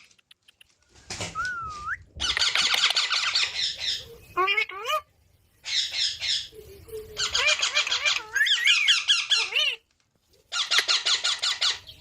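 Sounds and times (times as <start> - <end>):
whistled notes: 1.0 - 2.1
parrots squawking: 2.2 - 6.5, 7.2 - 9.8, 10.5 - 11.9.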